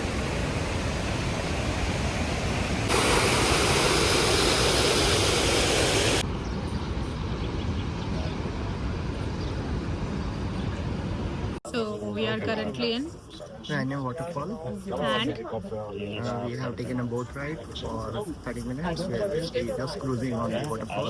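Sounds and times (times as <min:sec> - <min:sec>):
waterfall roaring: 0:00.0 - 0:06.2.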